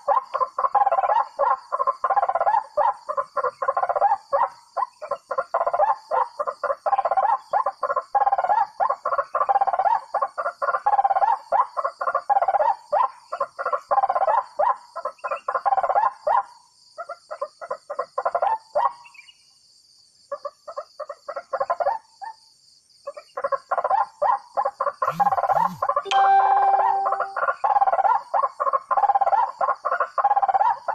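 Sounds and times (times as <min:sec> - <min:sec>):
whistling ducks calling: 0:25.0 - 0:26.1.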